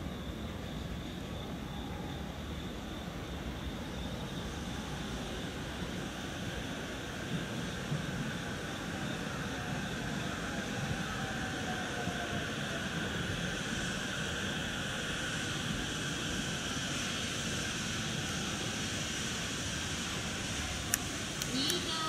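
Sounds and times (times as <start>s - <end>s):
train wheels rumbling and hissing: 0.0s - 22.0s.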